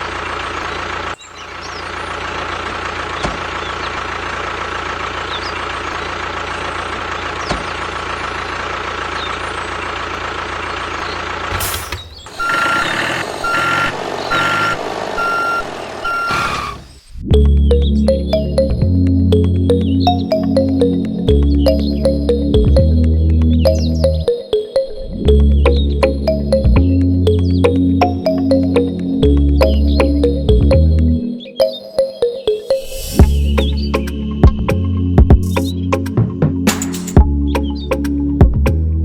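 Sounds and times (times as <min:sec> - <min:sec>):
vehicle motor running: 0:00.0 - 0:31.4
reversing alarm beeping: 0:11.6 - 0:17.0.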